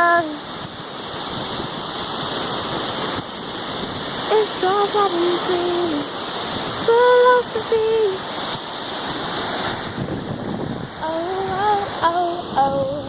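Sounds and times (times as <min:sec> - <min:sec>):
person singing unaccompanied: 0:00.0 - 0:00.4, 0:04.3 - 0:06.1, 0:06.8 - 0:08.2, 0:11.0 - 0:13.0
ocean surf: 0:00.0 - 0:13.0
wind on microphone: 0:00.0 - 0:13.0.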